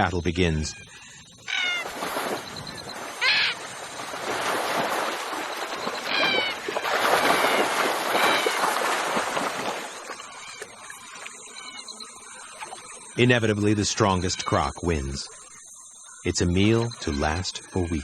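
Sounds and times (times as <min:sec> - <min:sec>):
heavy water splashing: 0:01.6 - 0:11.4.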